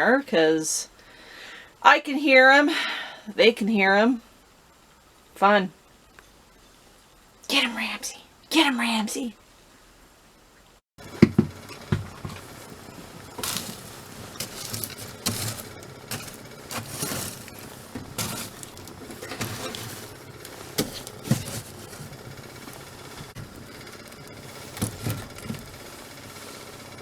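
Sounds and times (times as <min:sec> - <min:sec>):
animal scratching and scrabbling: 0:11.4 - 0:27.0.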